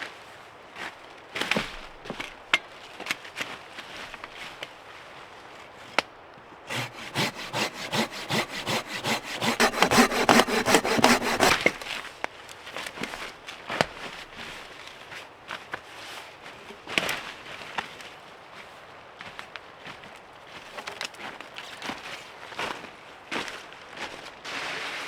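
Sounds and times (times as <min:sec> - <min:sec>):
hand saw cutting log: 0:06.7 - 0:12.0.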